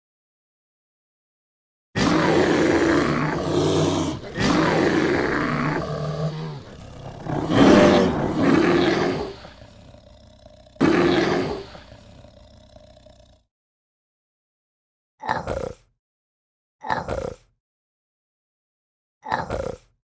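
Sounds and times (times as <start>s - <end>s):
bear growling: 2.0s - 13.4s.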